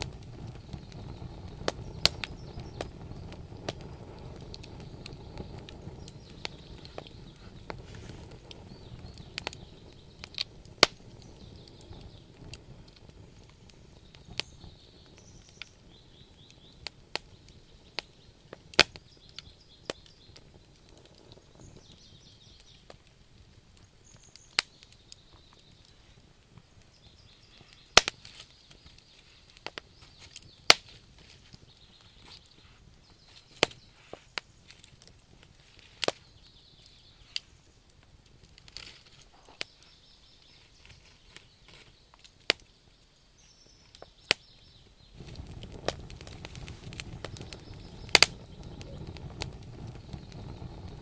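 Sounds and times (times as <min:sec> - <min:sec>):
campfire crackling and popping: 0:00.0 - 0:51.0
low rumble: 0:45.2 - 0:51.0.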